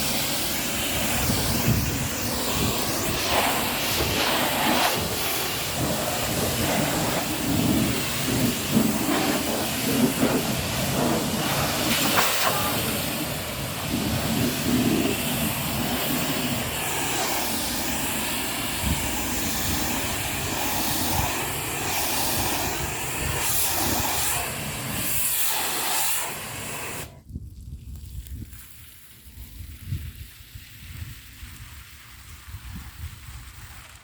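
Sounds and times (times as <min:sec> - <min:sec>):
high-pressure water spray hissing: 0:00.0 - 0:27.2.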